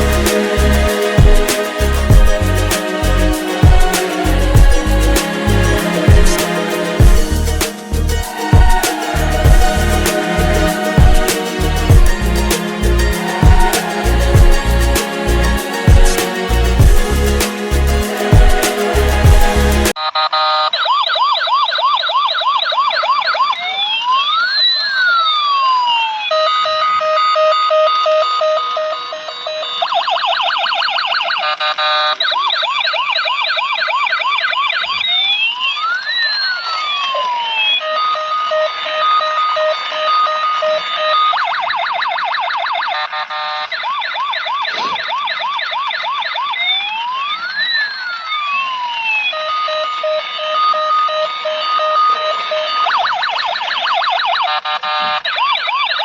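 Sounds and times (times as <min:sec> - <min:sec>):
electronic toy siren: 0:19.9 - 0:56.0.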